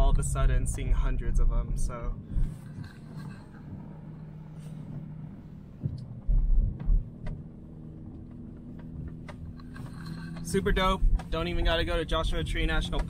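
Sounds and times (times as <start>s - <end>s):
car engine and road drone: 0.0s - 13.0s
loud low thumps: 4.8s - 9.6s.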